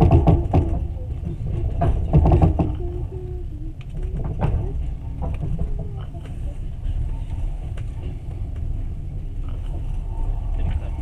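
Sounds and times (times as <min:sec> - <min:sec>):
sharp knocks and rattles: 0:00.0 - 0:02.9, 0:04.0 - 0:06.3
train rumbling inside carriage: 0:00.0 - 0:11.0.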